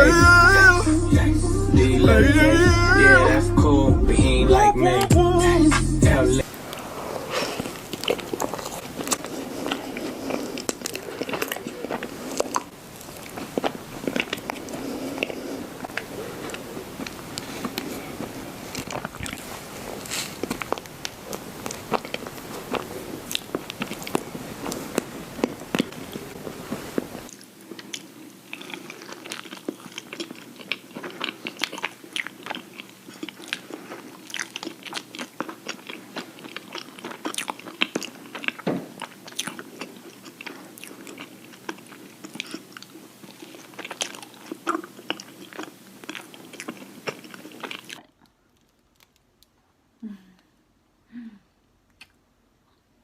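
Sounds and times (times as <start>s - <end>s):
chewing ice cream sandwich: 7.5s - 49.6s.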